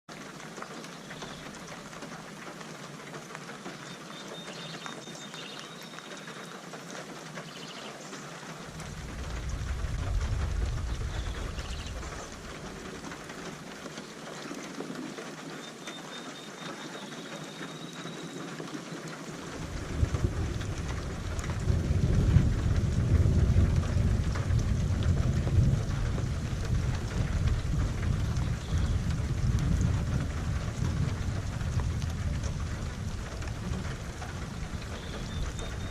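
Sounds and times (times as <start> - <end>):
steady rain falling: 0.1 - 35.9
thunder rumbling: 8.6 - 13.9, 19.2 - 35.9.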